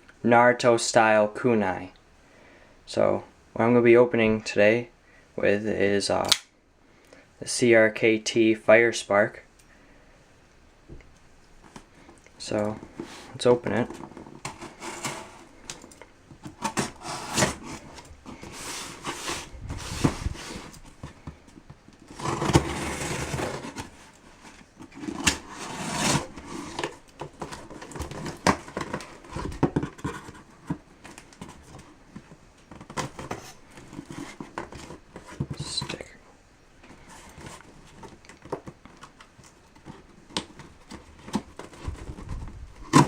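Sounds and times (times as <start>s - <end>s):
packaging scraping and clicking: 12.6s - 36.1s.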